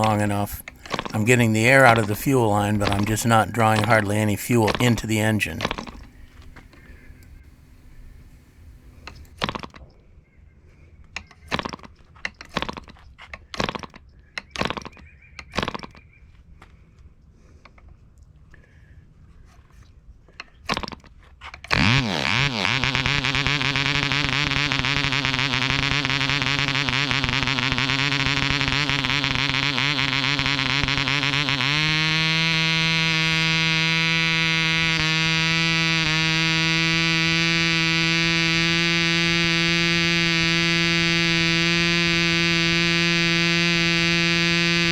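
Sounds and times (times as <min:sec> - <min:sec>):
model engine turning over: 0:00.0 - 0:09.8, 0:11.5 - 0:13.0, 0:20.7 - 0:44.9.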